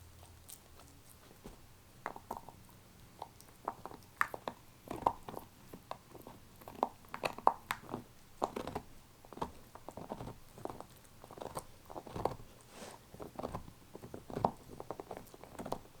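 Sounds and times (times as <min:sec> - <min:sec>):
dog gnawing on bone: 0:00.0 - 0:16.0.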